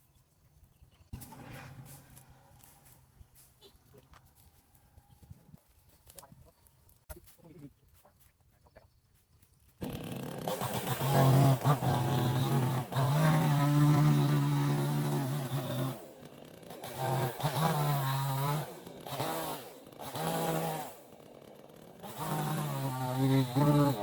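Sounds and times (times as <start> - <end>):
chainsaw engine running in bursts: 9.8 - 24.0.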